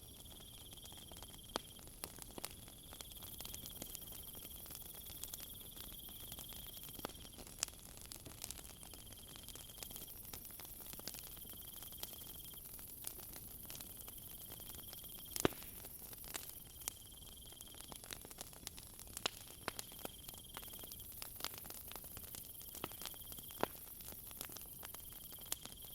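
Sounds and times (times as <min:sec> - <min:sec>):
high steady insect hiss: 0:00.0 - 0:01.8, 0:02.4 - 0:07.6, 0:08.5 - 0:18.2, 0:19.3 - 0:25.9
wood fire crackling: 0:00.0 - 0:25.9
crickets trilling: 0:02.6 - 0:07.5, 0:08.6 - 0:18.2.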